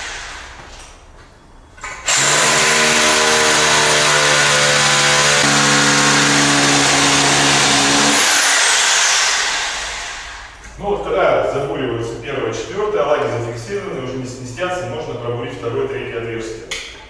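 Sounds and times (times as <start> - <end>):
hammer drill boring into concrete: 2.0 - 10.4.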